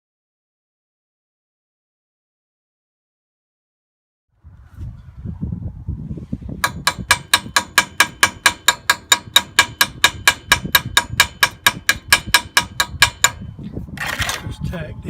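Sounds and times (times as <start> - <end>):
low wind rumble: 4.3 - 15.0.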